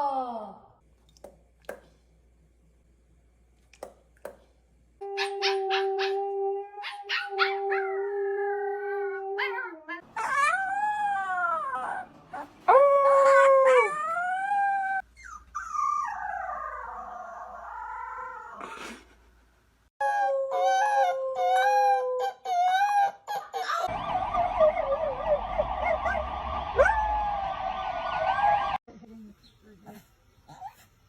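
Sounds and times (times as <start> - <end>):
dog howling: 5.0 - 15.0
dog yipping: 5.1 - 6.2, 6.8 - 7.9, 15.2 - 16.2, 20.1 - 23.9.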